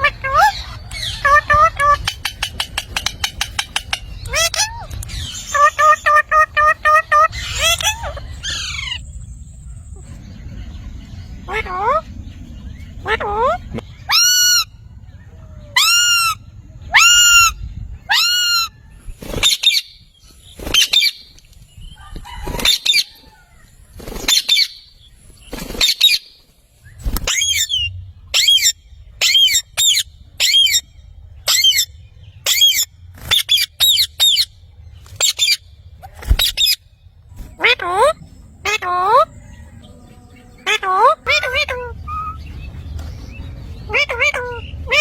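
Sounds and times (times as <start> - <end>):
parrot squawking: 0.0 - 9.0, 11.5 - 12.1, 13.0 - 14.7, 15.4 - 18.7, 27.3 - 30.8, 31.5 - 34.5, 37.4 - 42.5, 43.8 - 45.0.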